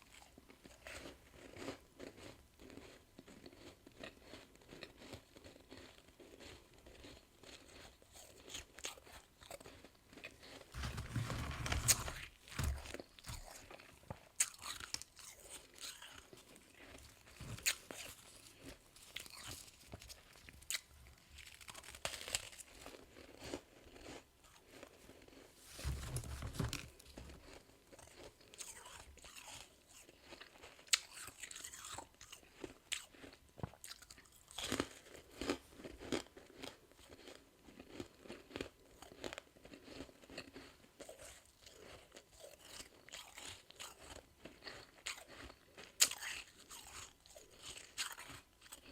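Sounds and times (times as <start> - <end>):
teeth crunching ice: 0.0 - 25.5, 27.0 - 48.9.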